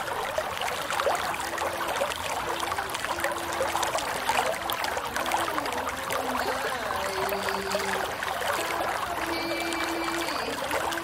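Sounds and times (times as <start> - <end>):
faint melody of low notes: 0.0 - 11.0
water trickling in a stream: 0.0 - 11.0.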